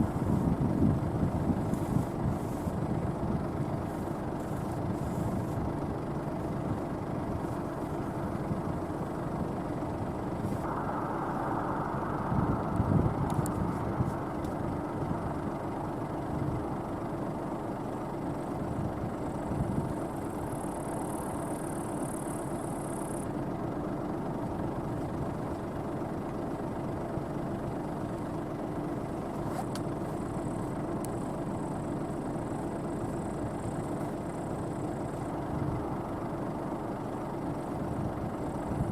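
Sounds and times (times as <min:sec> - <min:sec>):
combine harvester running: 0:00.0 - 0:38.9.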